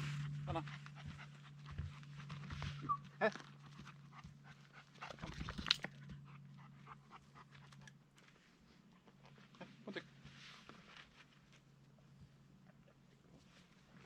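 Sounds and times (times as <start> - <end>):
dog panting: 0.2 - 2.9, 3.5 - 8.0.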